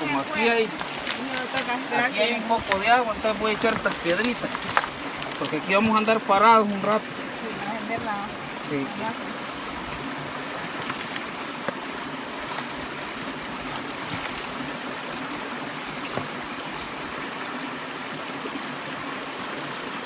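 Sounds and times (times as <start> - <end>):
creek water running: 0.0 - 20.0.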